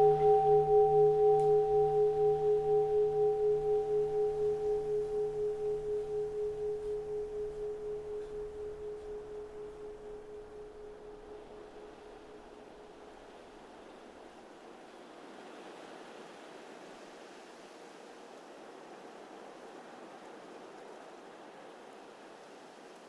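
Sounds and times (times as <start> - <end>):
bowl bell ringing: 0.0 - 12.4.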